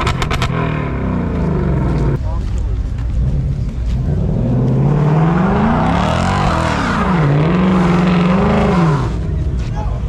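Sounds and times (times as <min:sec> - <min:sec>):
car engine revving hard: 0:04.1 - 0:09.3.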